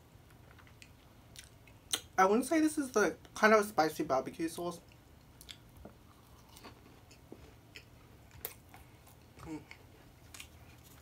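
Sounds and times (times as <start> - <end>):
person chewing food: 0.5 - 2.1, 4.9 - 11.0
mouth clicks and smacks: 0.6 - 2.2, 4.9 - 5.7
person murmuring: 9.4 - 9.8.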